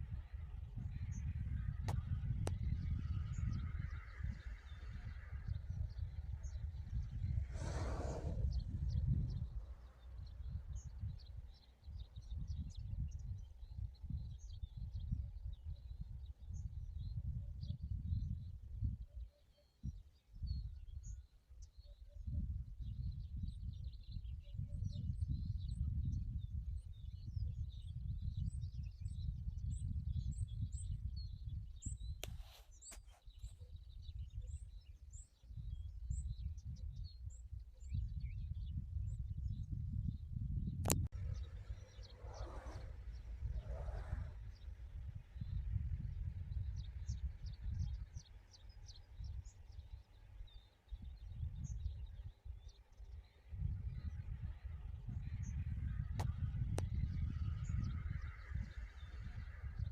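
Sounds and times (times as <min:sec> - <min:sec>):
low uneven rumble: 0:00.1 - 0:11.3, 0:41.0 - 0:52.6
small birds chirping: 0:40.9 - 0:59.9.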